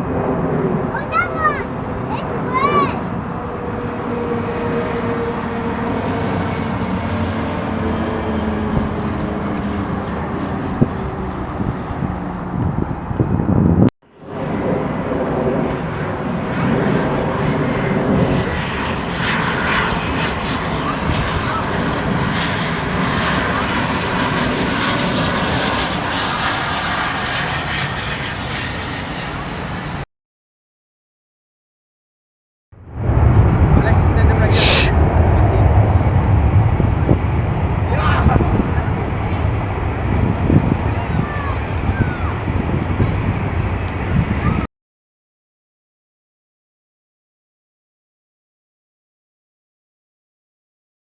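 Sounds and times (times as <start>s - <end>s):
aircraft engine drone: 0.0s - 30.0s, 32.8s - 44.7s
wind noise on microphone: 8.5s - 15.4s, 32.9s - 44.7s.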